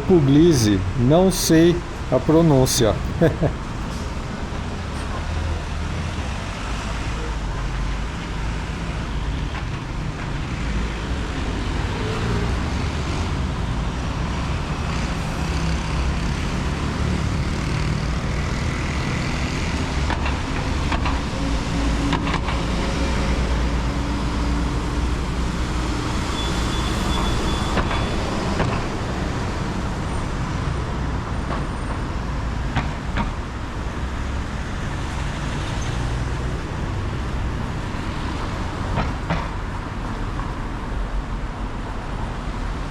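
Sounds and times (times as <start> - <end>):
road traffic rumble: 0.0 - 8.8.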